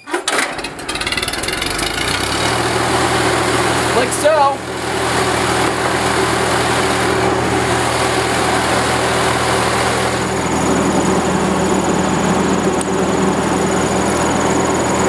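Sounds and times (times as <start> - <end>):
generator engine running: 0.0 - 15.0.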